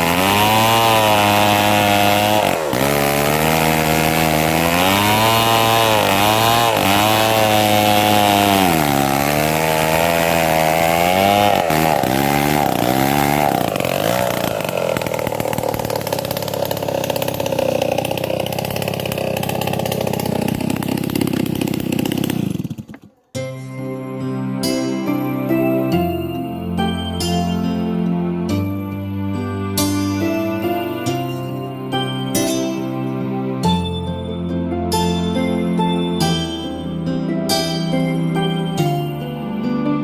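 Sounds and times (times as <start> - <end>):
chainsaw cutting wood: 0.0 - 23.6, 34.9 - 39.4.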